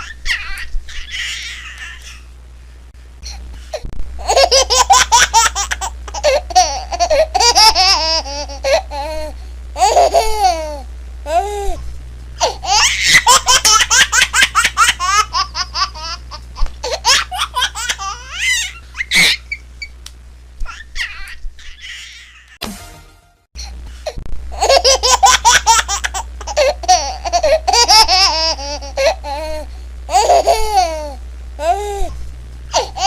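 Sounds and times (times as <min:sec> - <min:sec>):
baby giggling: 0:04.2 - 0:11.4, 0:12.4 - 0:19.6, 0:24.6 - 0:31.8
low hum: 0:07.3 - 0:13.0.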